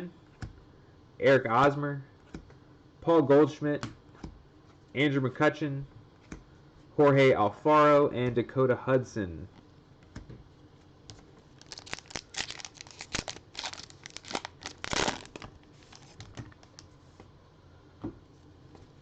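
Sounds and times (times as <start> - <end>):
plastic wrapper tearing and crinkling: 11.6 - 16.9.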